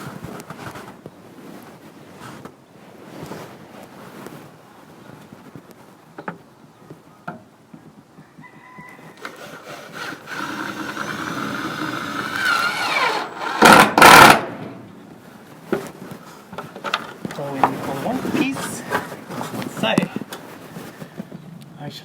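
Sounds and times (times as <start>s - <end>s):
power saw cutting plywood: 9.2s - 14.6s
loud bursts: 9.5s - 14.8s.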